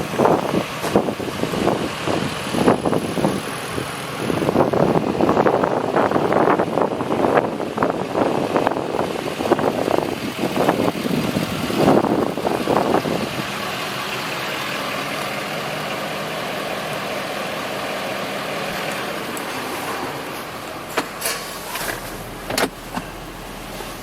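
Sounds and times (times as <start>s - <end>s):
uneven gusty noise: 0.0s - 14.2s
truck engine idling: 0.0s - 24.0s.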